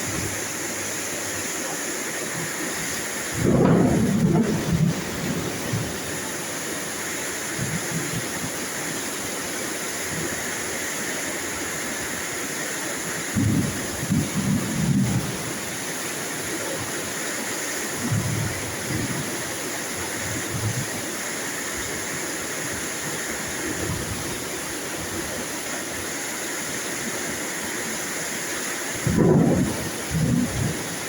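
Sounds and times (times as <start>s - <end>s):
heavy rain hiss: 0.0s - 31.0s
distant thunder rumbles: 3.2s - 6.2s, 29.0s - 31.0s.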